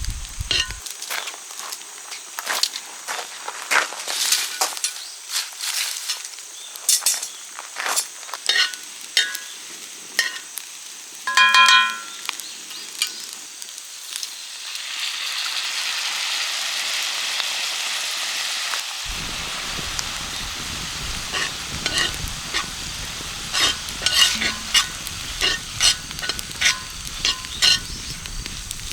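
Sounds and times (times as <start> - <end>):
food sizzling in a pan: 0.0 - 28.9
ringing metal clink: 11.3 - 12.2.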